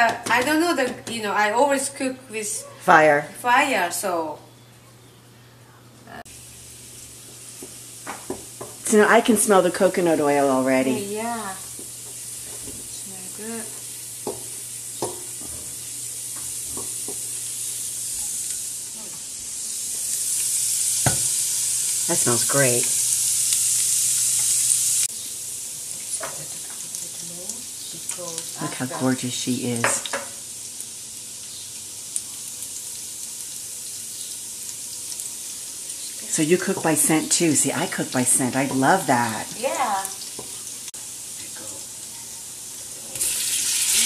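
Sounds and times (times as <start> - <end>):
garlic sizzling in oil: 6.3 - 44.0
utensil tapping against pot: 14.2 - 15.2.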